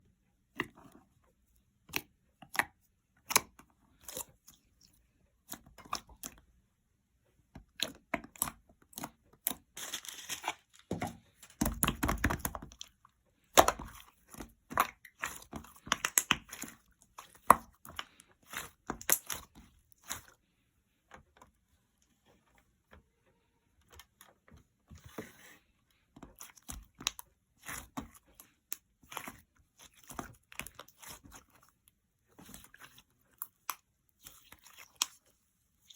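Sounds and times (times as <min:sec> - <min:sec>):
slime clicking and crackling: 0:14.6 - 0:20.2.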